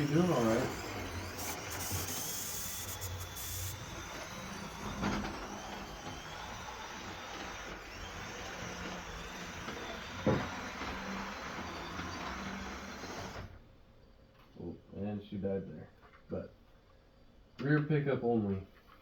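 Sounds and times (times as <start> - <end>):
wheels rolling on rails: 0.0 - 13.5
model train motor hum: 0.0 - 13.6.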